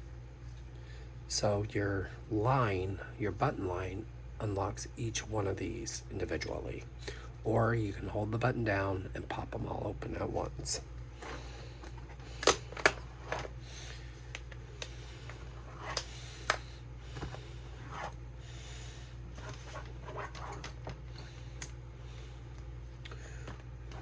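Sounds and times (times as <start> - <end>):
plastic handling: 11.1 - 18.2, 19.2 - 21.7.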